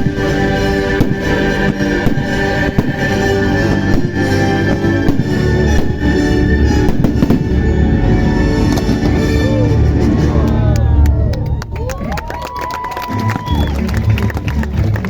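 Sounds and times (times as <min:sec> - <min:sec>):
fireworks bangs and pops: 0:00.0 - 0:07.7
loud music: 0:00.0 - 0:11.8.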